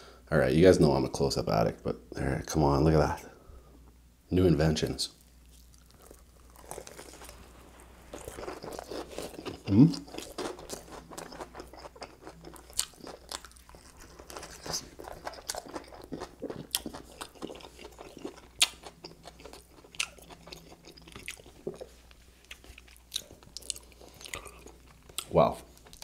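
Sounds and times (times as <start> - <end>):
person crunching food: 5.2 - 26.0.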